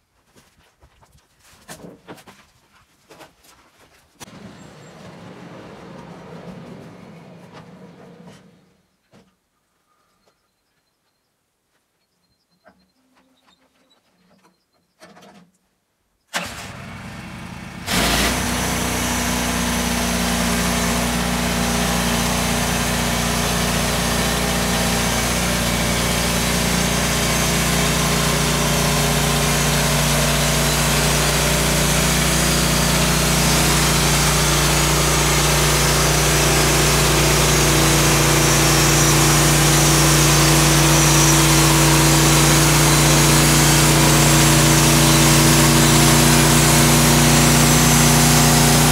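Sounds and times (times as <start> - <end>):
small petrol engine running: 4.3 - 8.7, 16.4 - 48.9.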